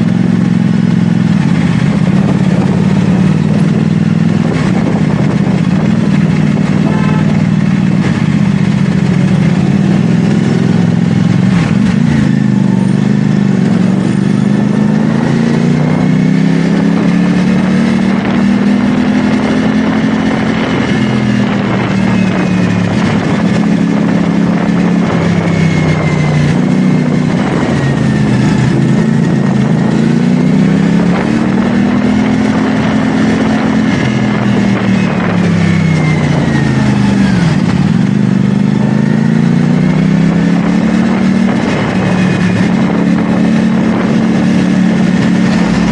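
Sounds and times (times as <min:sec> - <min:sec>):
motorcycle engine revving: 0:00.0 - 0:45.9
wind and road noise: 0:00.0 - 0:45.9.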